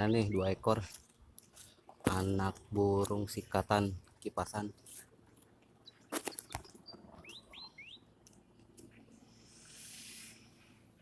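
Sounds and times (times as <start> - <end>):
rising bird chirps: 5.8 - 8.2
soft hiss: 9.1 - 11.0.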